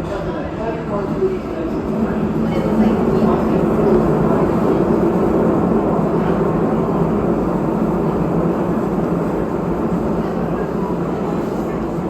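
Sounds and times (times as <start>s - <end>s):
subway car motors: 0.0s - 12.0s
subway car wheels on rails: 0.0s - 12.0s.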